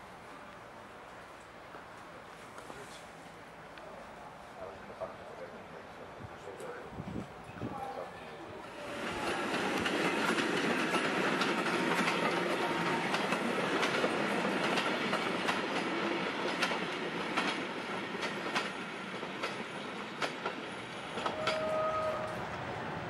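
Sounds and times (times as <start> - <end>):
train rolling noise: 0.0 - 23.0
train wheels clickety-clack: 8.7 - 22.7.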